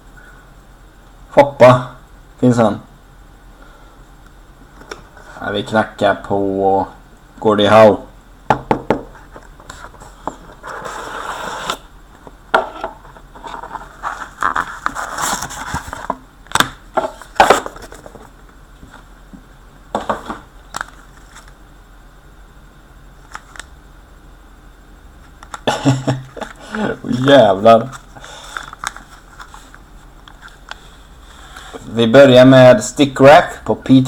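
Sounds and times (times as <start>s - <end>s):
cards scraping and tapping: 26.4s - 30.8s.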